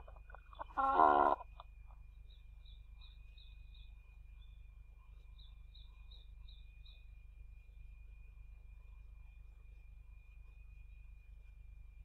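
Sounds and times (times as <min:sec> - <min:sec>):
small bird chirping: 0:00.0 - 0:04.6.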